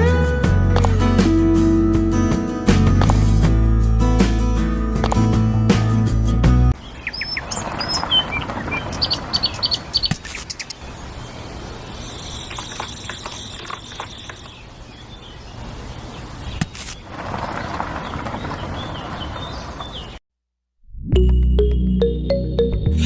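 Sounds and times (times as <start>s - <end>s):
background music: 0.0s - 6.8s
birds chirping: 6.8s - 20.2s.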